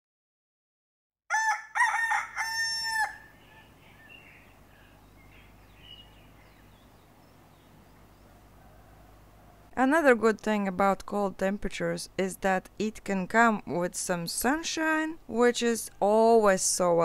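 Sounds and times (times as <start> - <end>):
rooster crowing: 1.3 - 4.3, 8.1 - 9.8.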